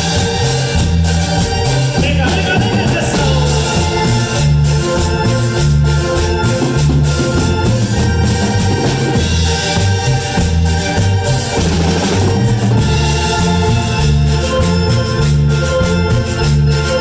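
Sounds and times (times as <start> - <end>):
bouncing bass line: 0.0 - 17.0
electronic organ keyboard: 0.0 - 17.0
percussion: 0.0 - 17.0.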